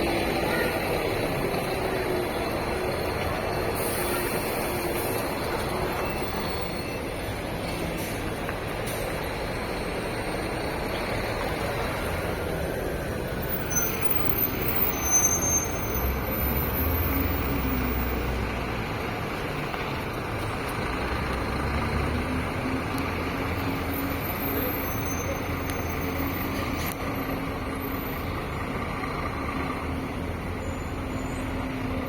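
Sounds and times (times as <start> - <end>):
bus diesel engine drone: 0.0 - 32.0
traffic noise: 0.0 - 32.0.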